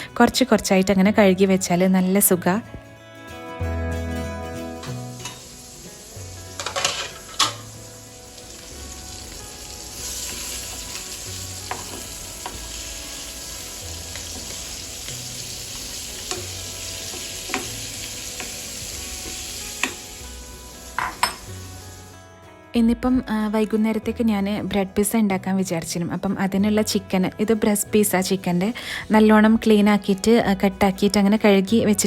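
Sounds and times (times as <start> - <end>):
soft background music: 0.0 - 32.0
utensils clinking on cookware: 4.8 - 5.5, 6.5 - 7.8, 10.1 - 12.6, 16.2 - 20.2, 20.9 - 21.6
fish sizzling in oil: 5.1 - 22.2.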